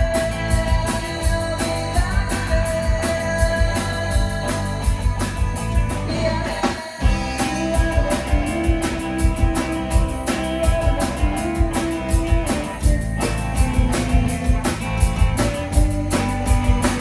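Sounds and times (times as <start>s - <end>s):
drum kit beat: 0.0s - 17.0s
electric guitar sustained notes: 7.0s - 17.0s.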